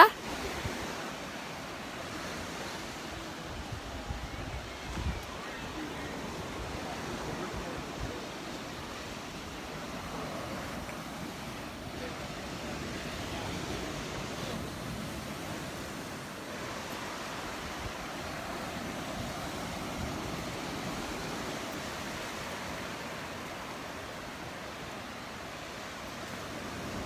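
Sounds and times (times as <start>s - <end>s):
small surf breaking on beach: 0.0s - 27.0s.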